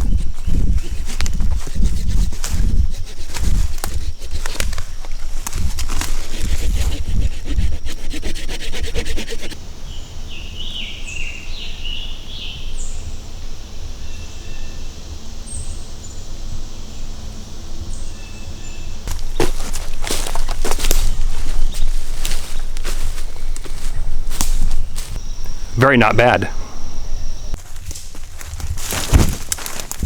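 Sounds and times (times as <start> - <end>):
footsteps rustling through leaf litter: 3.3 - 6.8, 19.1 - 25.2, 27.6 - 30.0
bird chirping: 9.8 - 13.2.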